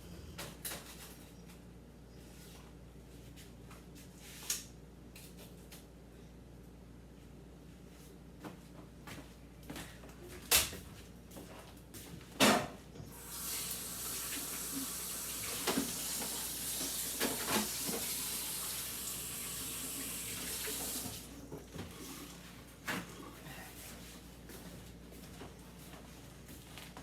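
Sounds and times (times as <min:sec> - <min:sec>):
faucet running into sink: 0:13.1 - 0:21.3.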